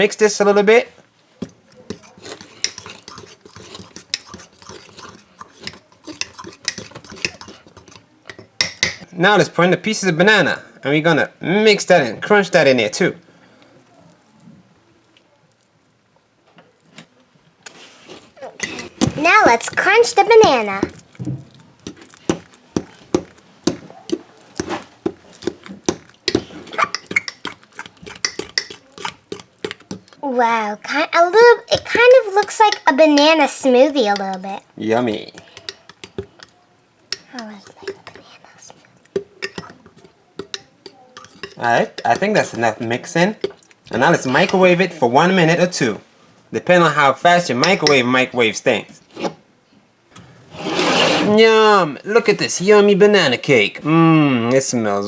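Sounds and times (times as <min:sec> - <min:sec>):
spoon clinking and scraping mug: 0:01.8 - 0:09.0, 0:18.6 - 0:21.0, 0:21.8 - 0:30.0, 0:35.3 - 0:36.5, 0:39.4 - 0:42.7.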